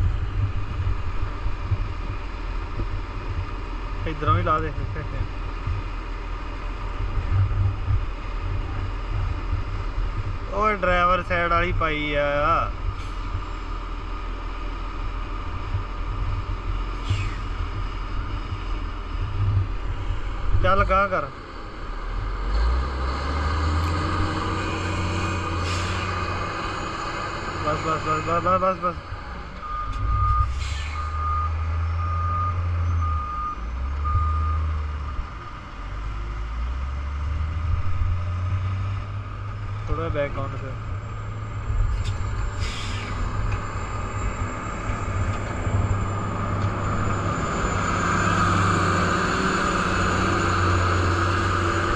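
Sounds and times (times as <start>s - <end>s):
diesel truck engine rumbling: 0.0s - 51.9s
reversing alarm beeping: 29.6s - 35.2s
short hiss: 42.6s - 43.2s.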